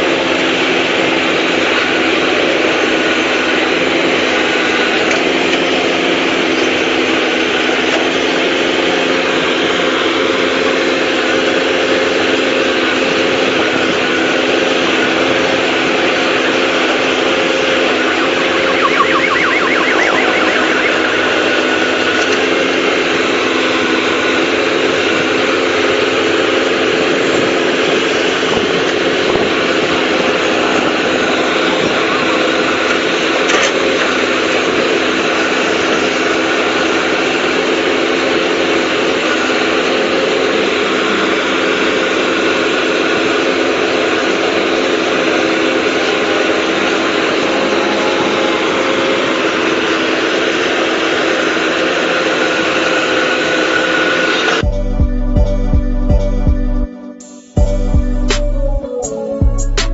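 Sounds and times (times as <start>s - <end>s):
high warbling sound: 17.0s - 22.6s.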